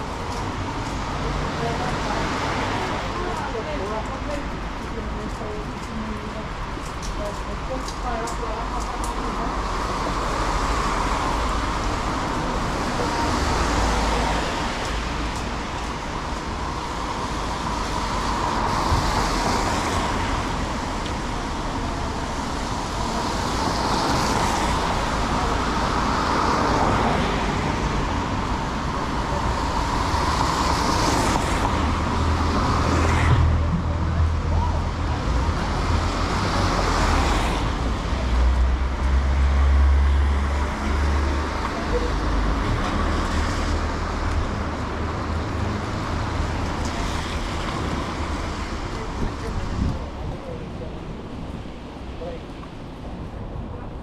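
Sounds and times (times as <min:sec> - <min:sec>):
vehicle engine rumble: 0:00.0 - 0:54.0.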